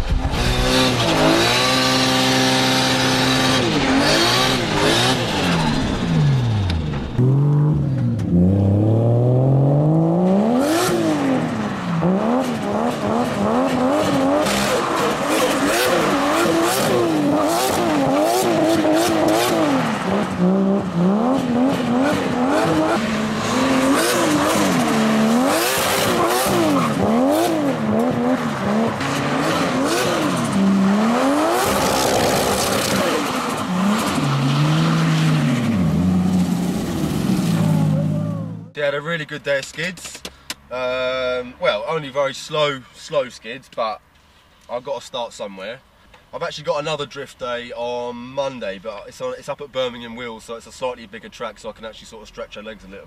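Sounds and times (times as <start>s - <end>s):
car engine revving hard: 0.2s - 38.6s.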